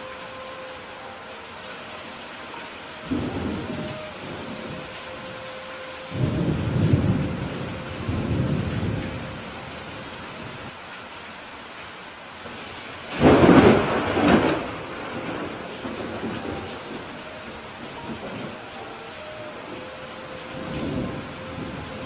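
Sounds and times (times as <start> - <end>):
steady rain falling: 0.0 - 22.0
thunder rumbling: 3.0 - 5.4, 6.1 - 10.7, 13.1 - 22.0
sharp thunderclap: 13.1 - 16.3.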